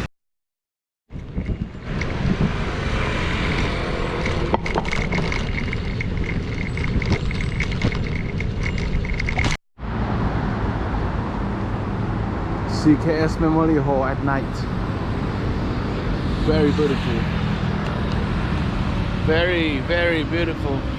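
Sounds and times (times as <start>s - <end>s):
wind rush on microphone: 1.1s - 9.4s
road noise from bicycle: 1.1s - 20.9s.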